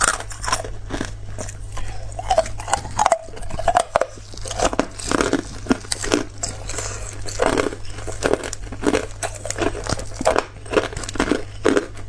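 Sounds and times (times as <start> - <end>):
ice crunching between teeth: 0.0 - 12.0.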